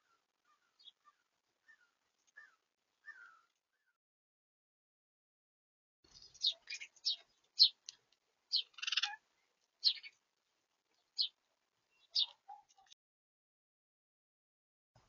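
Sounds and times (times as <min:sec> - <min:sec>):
small birds chirping: 0:00.0 - 0:04.0, 0:06.1 - 0:13.0.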